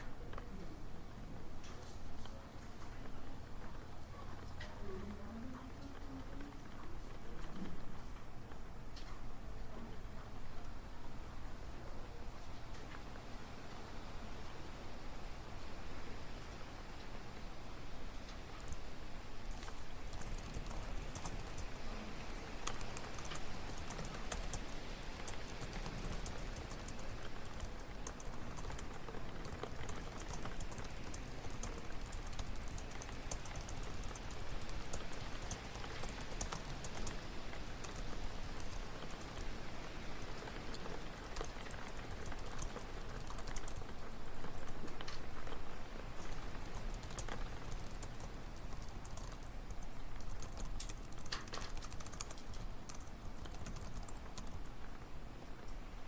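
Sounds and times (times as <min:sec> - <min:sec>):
keyboard typing clicks: 0:19.5 - 0:39.5, 0:40.2 - 0:45.6, 0:46.2 - 0:54.7.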